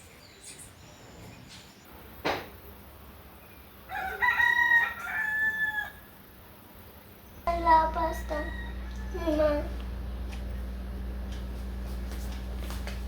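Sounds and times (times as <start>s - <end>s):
rooster crowing: 3.8s - 6.2s, 7.6s - 9.8s.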